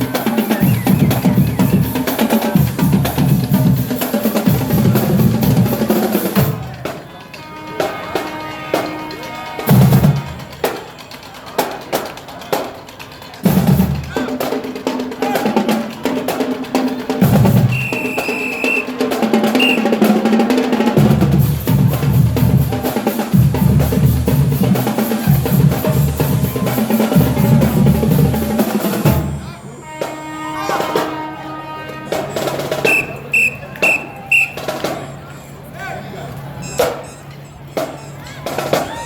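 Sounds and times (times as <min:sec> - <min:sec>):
snare and bass drums: 0:00.0 - 0:07.1, 0:09.7 - 0:11.0, 0:13.4 - 0:14.6, 0:15.2 - 0:29.5, 0:32.5 - 0:35.1
marching band playing: 0:00.0 - 0:35.7.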